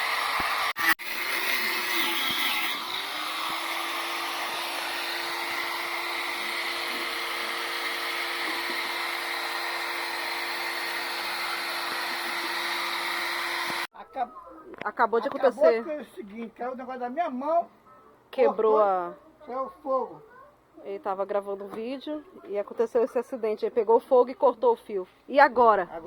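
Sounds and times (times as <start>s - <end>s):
power tool motor running: 0.0s - 13.9s.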